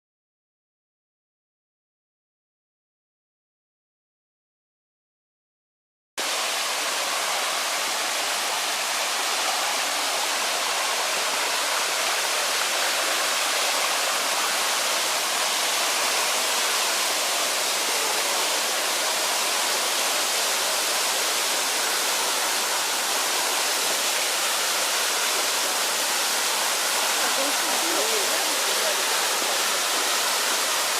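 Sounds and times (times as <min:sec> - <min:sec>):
mountain river rushing: 0:06.2 - 0:30.9.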